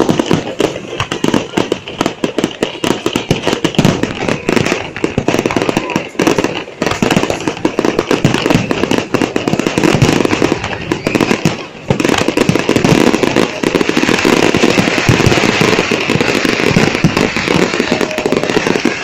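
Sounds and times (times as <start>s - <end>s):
fireworks cracking and banging: 0.0s - 19.0s.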